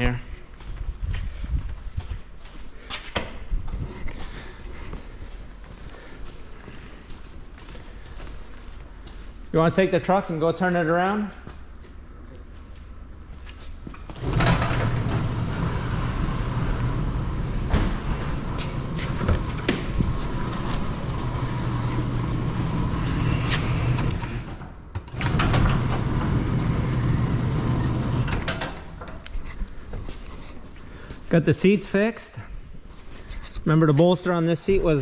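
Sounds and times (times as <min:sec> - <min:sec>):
overhead door motor humming: 0:14.1 - 0:29.2.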